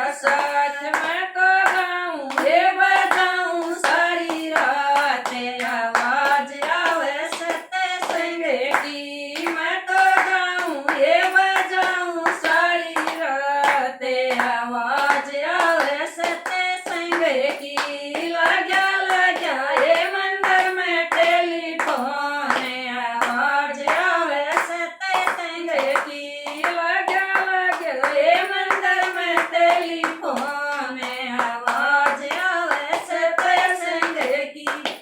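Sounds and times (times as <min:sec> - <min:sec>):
person singing devotional song: 0:00.0 - 0:35.0
rhythmic hand clapping: 0:00.0 - 0:35.0.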